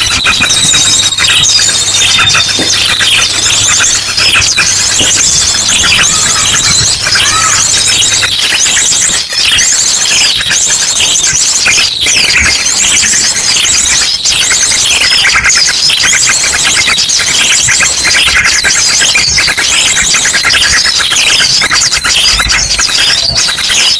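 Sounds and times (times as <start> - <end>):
drongo song: 0.0 - 8.4
rapid high bird trills: 0.0 - 23.9
songbirds chattering and calling: 0.0 - 23.9.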